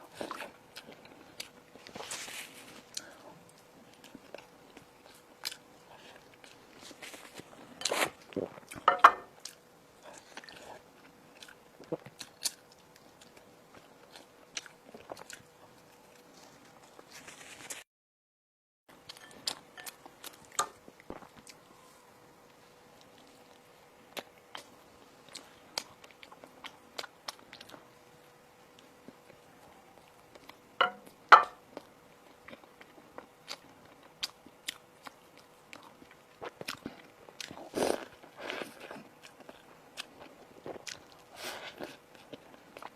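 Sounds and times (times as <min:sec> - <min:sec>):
person chewing crunchy food: 0:00.0 - 0:17.4, 0:18.9 - 0:28.0, 0:28.7 - 0:42.9
faint steady hum: 0:00.0 - 0:17.8, 0:18.9 - 0:42.9
person biting and chewing food: 0:14.1 - 0:17.1, 0:32.5 - 0:42.9.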